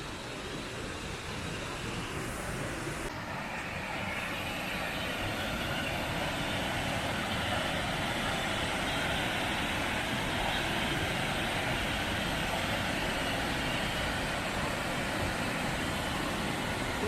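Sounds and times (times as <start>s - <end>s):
waterfall roaring: 8.1s - 17.0s.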